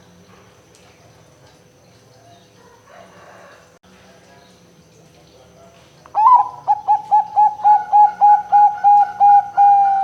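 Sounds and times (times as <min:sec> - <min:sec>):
zebra dove cooing: 0:06.2 - 0:10.0.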